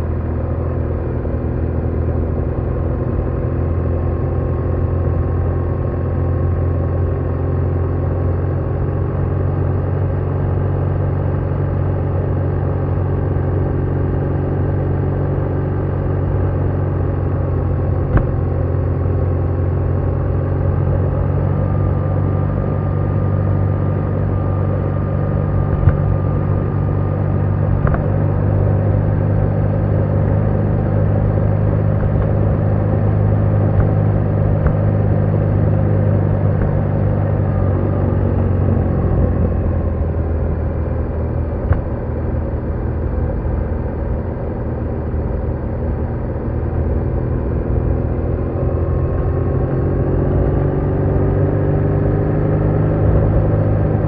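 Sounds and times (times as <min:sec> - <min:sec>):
road and wind noise: 0:00.0 - 0:54.0
motorcycle engine running: 0:12.4 - 0:44.8.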